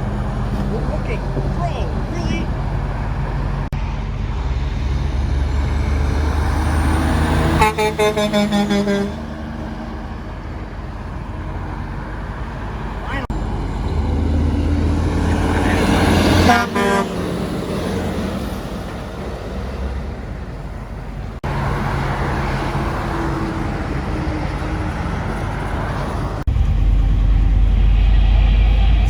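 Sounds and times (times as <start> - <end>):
highway traffic rumble: 0.0 - 29.0
truck horn blast: 7.3 - 9.4, 15.6 - 17.3.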